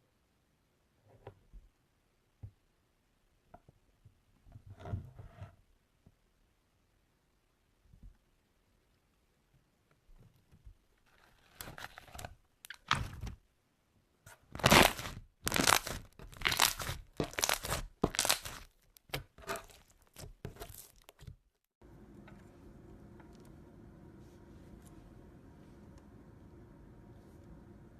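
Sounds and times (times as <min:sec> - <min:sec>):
slime squishing and crackling: 0:14.5 - 0:21.3
steady low hum: 0:21.8 - 0:27.9.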